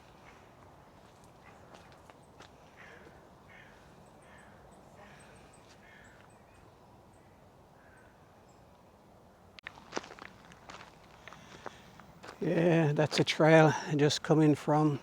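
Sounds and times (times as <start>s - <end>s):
faint bird calls: 0.0s - 8.8s.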